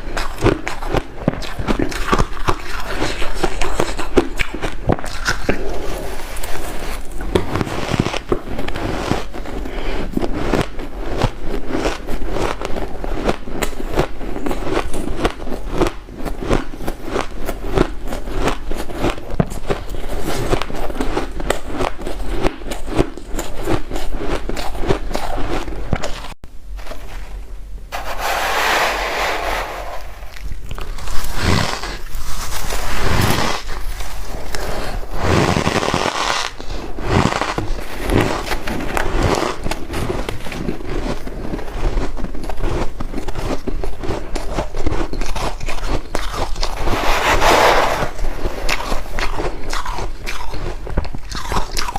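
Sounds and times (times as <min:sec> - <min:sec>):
ice being chewed: 0:00.0 - 0:26.4, 0:30.4 - 0:47.0, 0:48.1 - 0:51.9
soft even rushing noise: 0:27.9 - 0:30.7.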